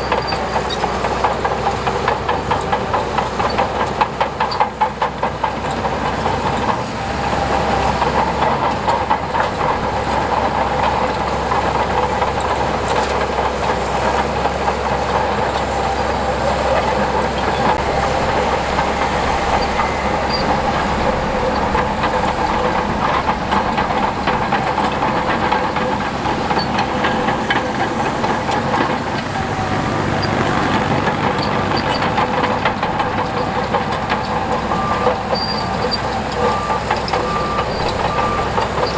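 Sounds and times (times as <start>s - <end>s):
diesel engine under load: 0.0s - 38.9s
metallic clatter of steel tracks: 0.0s - 38.9s
steady whine: 16.9s - 34.9s.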